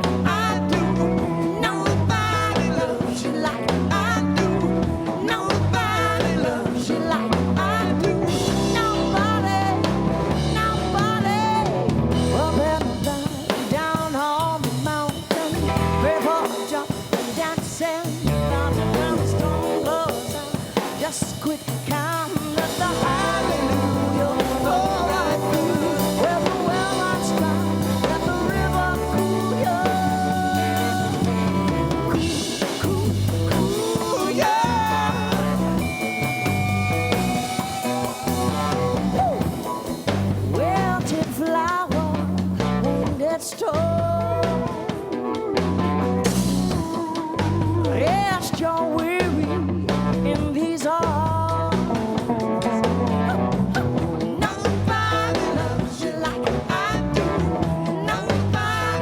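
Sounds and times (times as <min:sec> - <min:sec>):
rock band playing: 0:00.0 - 0:59.0
electric guitar bending notes: 0:22.6 - 0:41.3.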